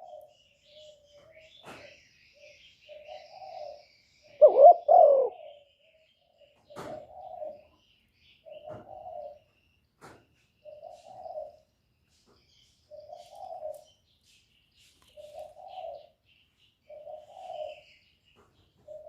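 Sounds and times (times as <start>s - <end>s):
dove cooing: 0.0s - 0.3s, 1.6s - 5.7s, 6.4s - 7.7s, 8.4s - 9.5s, 10.6s - 11.6s, 12.9s - 13.8s, 15.2s - 16.2s, 16.9s - 18.0s, 18.8s - 19.0s
small birds chirping: 0.0s - 19.0s.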